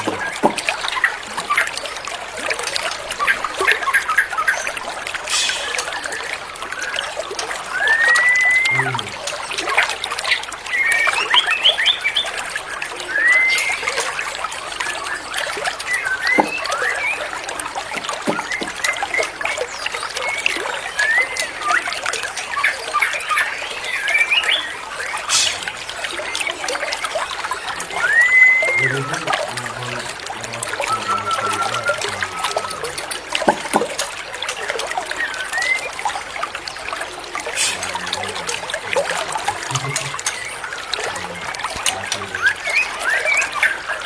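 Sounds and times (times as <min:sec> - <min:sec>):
trickle of running water: 0:00.0 - 0:44.0
bird singing slurred whistles: 0:07.7 - 0:09.1, 0:10.3 - 0:12.4, 0:13.0 - 0:15.2, 0:15.8 - 0:19.5, 0:20.2 - 0:25.8, 0:27.6 - 0:29.2, 0:30.8 - 0:33.8, 0:35.2 - 0:35.9
quick chattering bird notes: 0:13.1 - 0:15.0, 0:15.8 - 0:17.3, 0:25.2 - 0:25.8.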